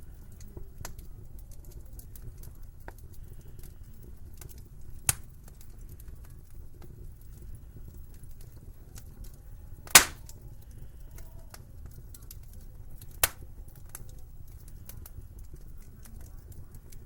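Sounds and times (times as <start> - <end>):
wood fire crackling: 0.0 - 17.0
loud sharp pops: 9.9 - 10.3, 13.2 - 13.4.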